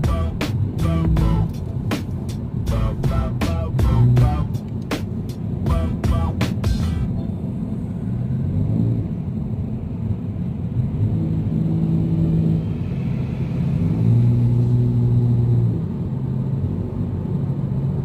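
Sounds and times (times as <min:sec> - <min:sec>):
engine rumble and hum: 0:00.0 - 0:18.0.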